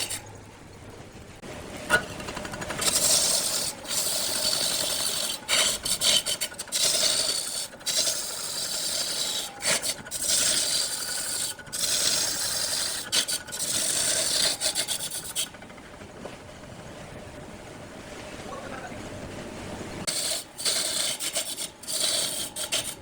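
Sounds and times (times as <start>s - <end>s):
tool scraping wood on lathe: 0.0s - 0.3s, 1.9s - 15.5s, 20.1s - 23.0s.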